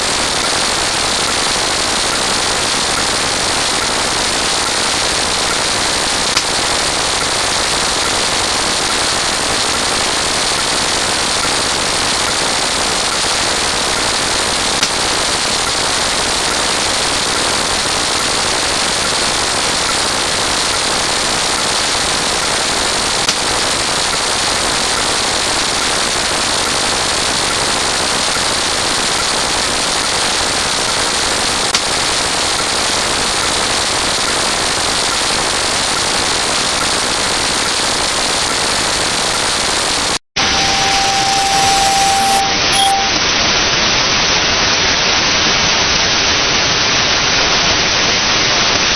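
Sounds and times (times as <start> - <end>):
rapid gunfire-like crackle: 0.0 - 40.2
steady beep: 40.4 - 43.2.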